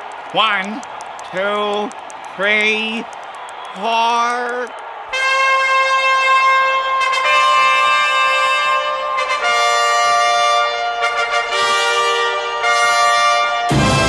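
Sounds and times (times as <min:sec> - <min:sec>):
brass fanfare: 0:05.1 - 0:14.0.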